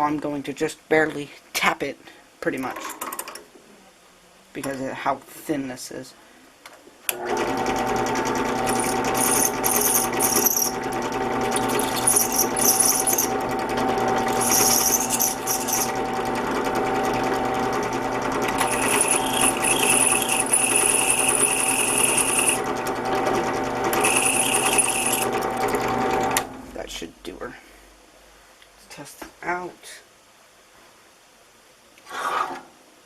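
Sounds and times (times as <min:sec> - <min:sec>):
drill press motor running: 0:07.1 - 0:26.7
drill bit screeching on metal: 0:08.6 - 0:10.8, 0:11.4 - 0:13.5, 0:14.1 - 0:16.1, 0:18.6 - 0:22.7, 0:23.9 - 0:25.4.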